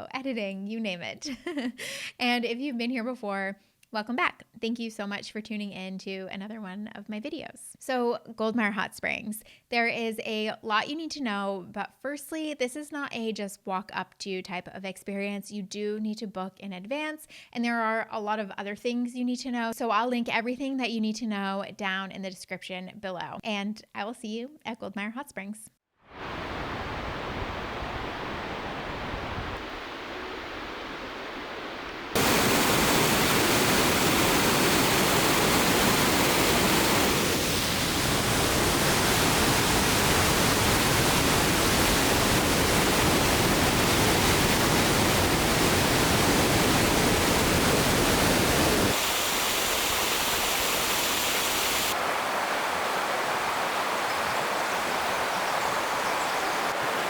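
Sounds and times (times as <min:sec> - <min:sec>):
rushing water roar: 0:26.2 - 0:57.0.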